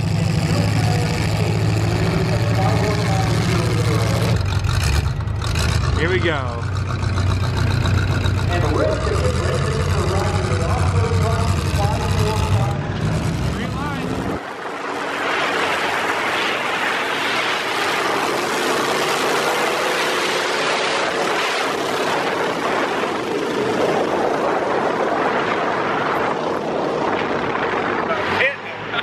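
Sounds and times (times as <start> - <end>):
faint steady engine tone: 0.0 - 14.9
car engines droning: 0.0 - 29.0
wind rushing: 11.8 - 28.9.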